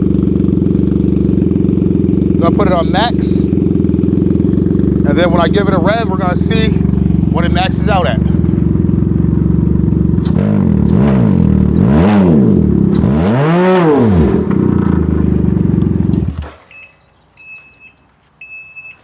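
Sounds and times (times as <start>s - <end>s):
motorcycle engine idling and revving: 0.0s - 18.2s
faint short beeps: 16.7s - 19.0s.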